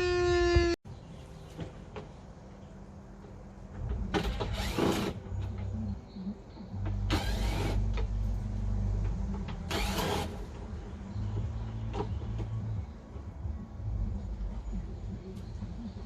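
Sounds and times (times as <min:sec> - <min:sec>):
rotary tool cutting plastic: 0:09.7 - 0:10.4.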